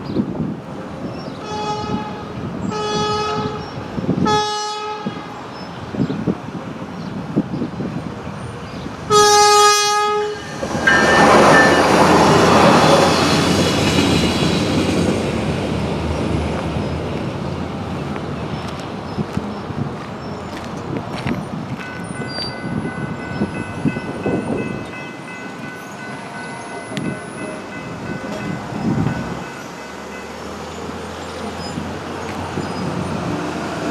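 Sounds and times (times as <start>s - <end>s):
train horn blast: 1.4s - 3.6s, 4.2s - 5.3s, 9.1s - 11.8s
train rolling by: 5.2s - 33.9s.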